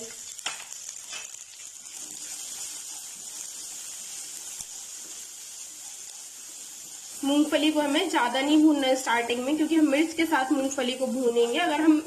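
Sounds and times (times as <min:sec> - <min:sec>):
food sizzling in hot oil: 0:00.0 - 0:12.0
spatula stirring: 0:00.2 - 0:09.0.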